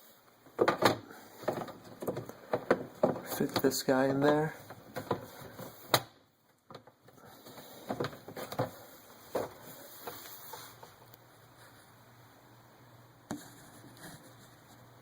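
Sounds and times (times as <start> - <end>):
faint handling noise: 0.0 - 12.0
plastic parts clicking and knocking: 0.5 - 9.6.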